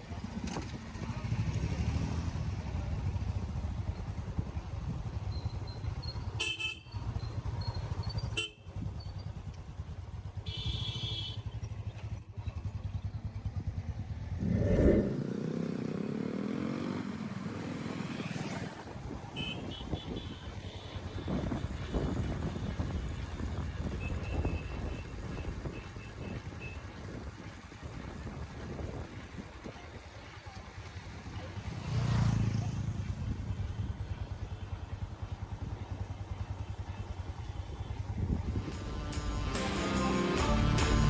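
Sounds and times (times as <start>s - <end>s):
motorcycle engine running: 0.0s - 41.0s
vehicle horns honking: 6.3s - 7.1s, 8.3s - 8.8s, 10.4s - 11.6s, 19.3s - 21.5s, 23.9s - 26.9s.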